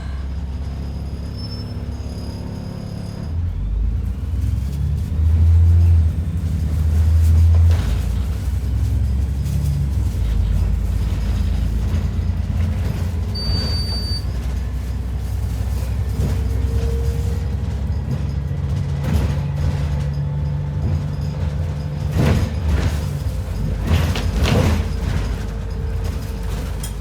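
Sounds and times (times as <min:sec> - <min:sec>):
bus engine drone: 0:00.0 - 0:27.0
rattles and knocks: 0:05.2 - 0:27.0
short high beep: 0:13.4 - 0:14.3.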